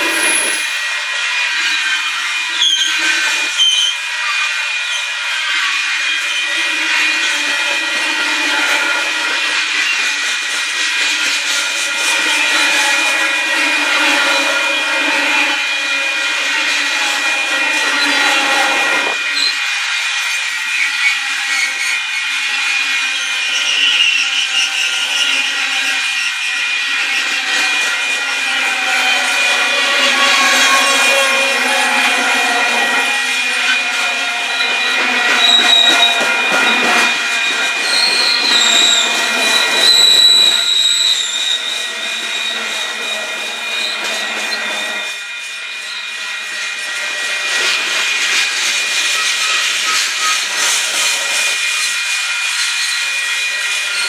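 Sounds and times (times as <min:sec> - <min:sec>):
steady high ring: 0:00.0 - 0:01.3
train wheels squealing: 0:00.0 - 0:54.0.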